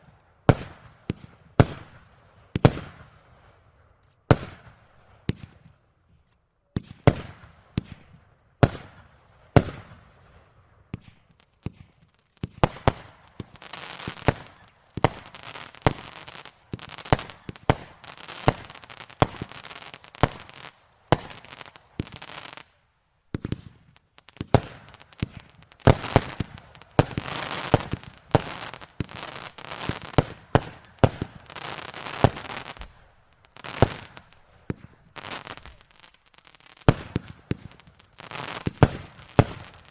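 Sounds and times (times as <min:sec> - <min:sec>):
fireworks bangs: 0:10.9 - 0:39.9
fireworks crackling: 0:10.9 - 0:39.9.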